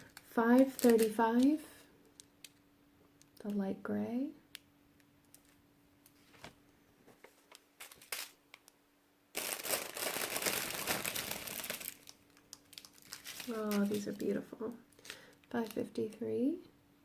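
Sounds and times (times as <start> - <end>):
plastic bag crinkling: 0.0 - 2.6, 7.8 - 8.4, 9.3 - 16.2.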